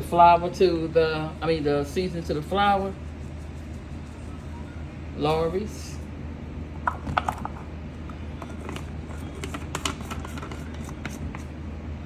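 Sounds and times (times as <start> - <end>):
steady low hum: 0.0 - 12.0
shaker bottle clicking and tapping: 8.4 - 11.4.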